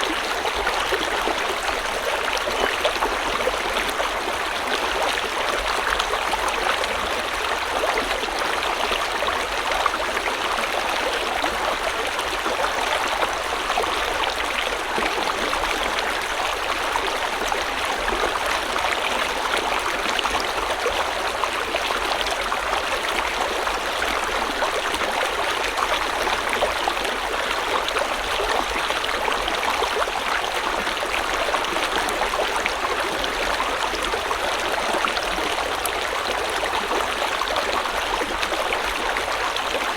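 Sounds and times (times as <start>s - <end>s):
running water of stream: 0.0s - 39.9s.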